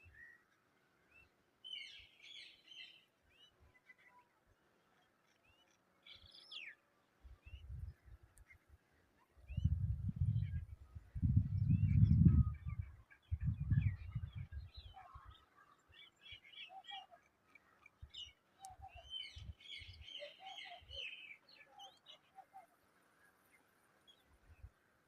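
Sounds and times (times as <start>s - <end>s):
birds chirping and chattering: 9.5s - 24.3s.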